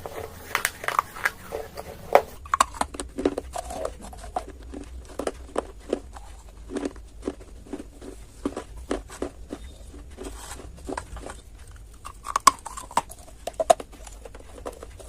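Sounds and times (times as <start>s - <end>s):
clay crunching while chewed: 0.0s - 15.0s.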